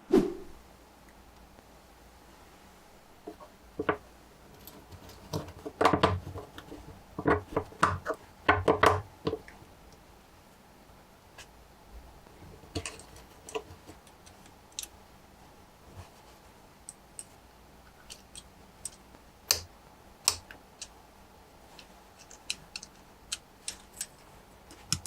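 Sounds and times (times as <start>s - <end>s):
plastic parts clicking and rattling: 3.3s - 9.6s, 12.4s - 15.0s, 16.9s - 19.7s, 21.7s - 25.0s.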